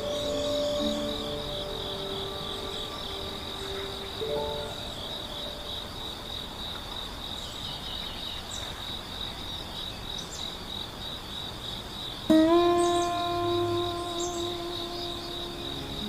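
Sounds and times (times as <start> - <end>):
sustained musical tone: 0.0 - 6.3, 12.3 - 16.0
crickets trilling: 0.0 - 16.0.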